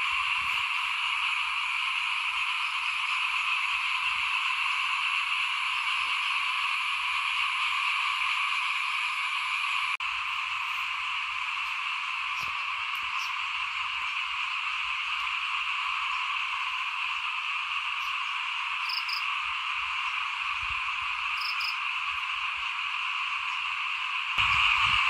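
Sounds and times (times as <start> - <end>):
chorus of small frogs calling: 11.6 - 15.2, 17.9 - 19.4, 21.3 - 22.7.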